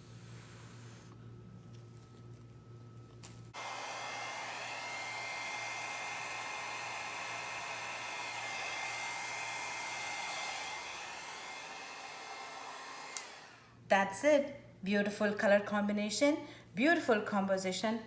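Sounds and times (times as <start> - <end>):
hair dryer running: 3.6 - 13.8.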